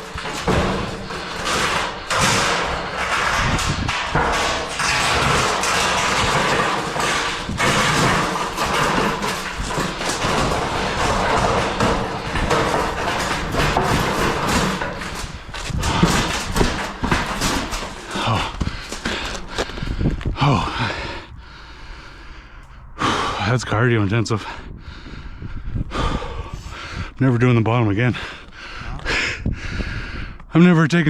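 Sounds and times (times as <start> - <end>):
metal roof panel thuds and knocks: 0.0 - 20.0.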